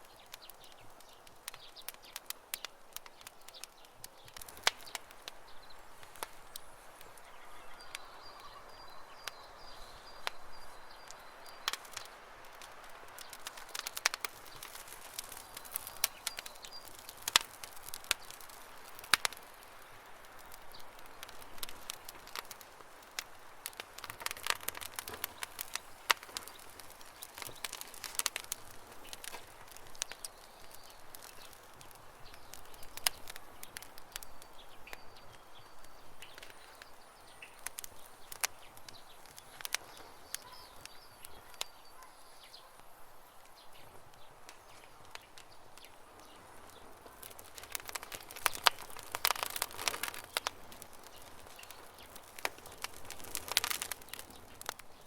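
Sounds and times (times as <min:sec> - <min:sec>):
birds chirping faintly: 0:00.0 - 0:55.0
campfire crackling: 0:00.0 - 0:55.0.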